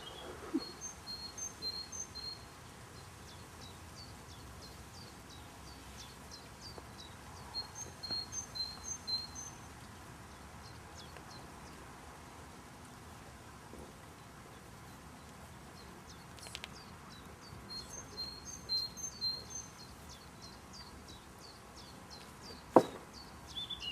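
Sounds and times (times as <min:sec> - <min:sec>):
bird chirping: 0:00.0 - 0:11.9, 0:14.0 - 0:23.9.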